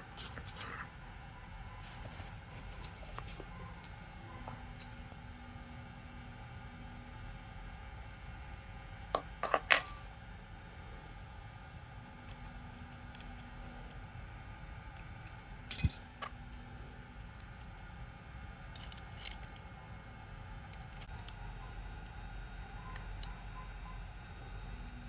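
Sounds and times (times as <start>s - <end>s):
metal parts and tools clinking: 15.2s - 16.4s, 18.6s - 19.6s.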